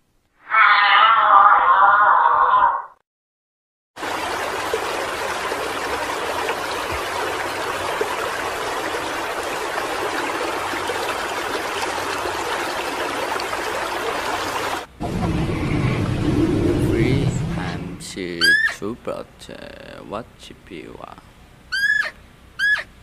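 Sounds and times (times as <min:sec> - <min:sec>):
running water: 0:04.0 - 0:18.9.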